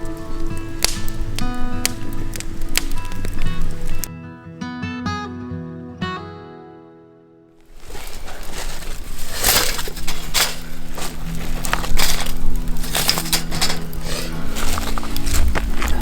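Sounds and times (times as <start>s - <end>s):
campfire crackling and popping: 0.0s - 4.1s, 7.6s - 16.0s.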